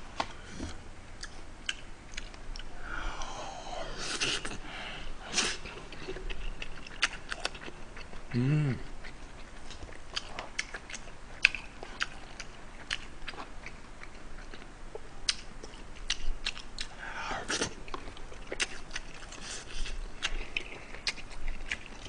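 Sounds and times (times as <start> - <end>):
chewing and mouth sounds: 0.6 - 4.6, 5.3 - 22.0.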